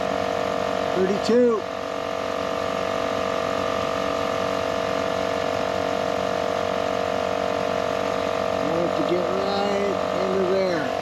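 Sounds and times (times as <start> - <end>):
air compressor running: 0.0 - 11.0.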